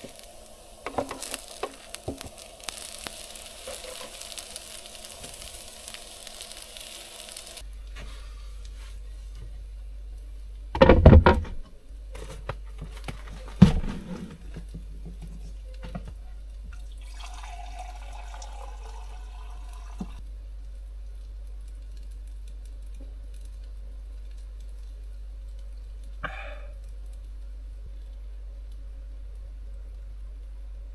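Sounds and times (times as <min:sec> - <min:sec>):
water running: 0:00.0 - 0:07.7, 0:12.8 - 0:20.2
steady low hum: 0:00.0 - 0:30.9.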